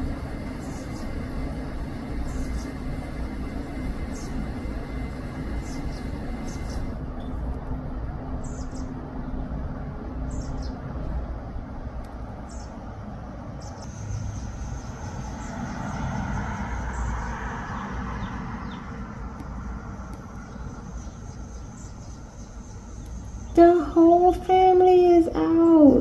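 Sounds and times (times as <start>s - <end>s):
thin steady high tone: 0.0s - 7.0s
bird chirping: 0.0s - 7.4s, 8.4s - 9.5s, 10.3s - 10.8s, 12.4s - 12.8s, 13.6s - 26.0s
steady low rumble: 0.0s - 26.0s.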